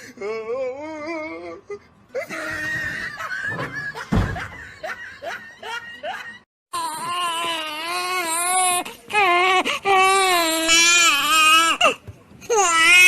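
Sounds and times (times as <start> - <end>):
person laughing and squealing: 2.2 - 6.3
dull thump: 3.4 - 4.7.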